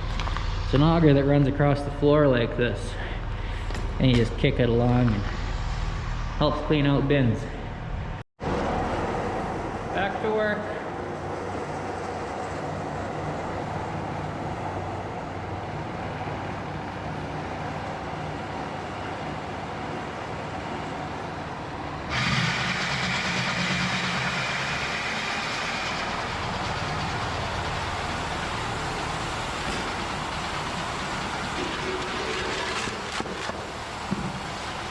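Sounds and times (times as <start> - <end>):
farm machinery engine drone: 0.0 - 34.9.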